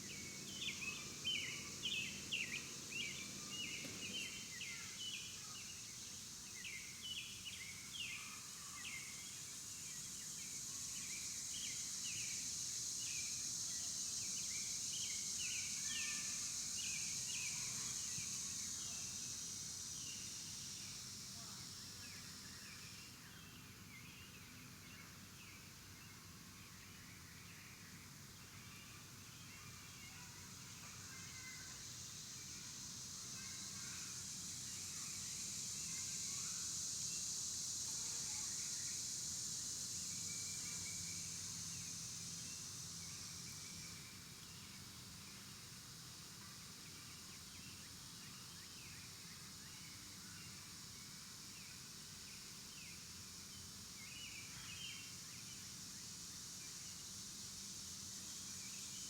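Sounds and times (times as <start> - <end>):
high insect buzz: 30.1 - 44.6.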